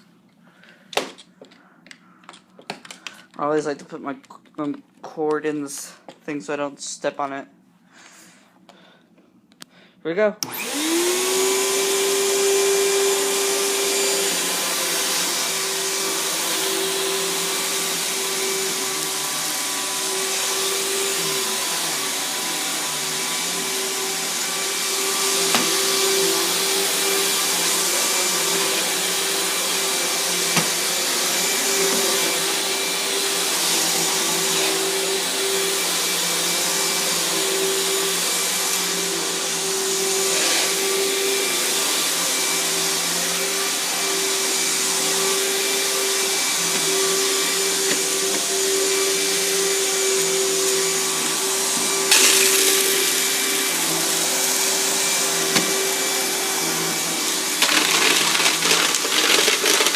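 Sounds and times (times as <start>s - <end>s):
vacuum cleaner running: 10.4s - 59.9s
debris clicking in vacuum: 52.1s - 53.2s, 57.6s - 59.9s.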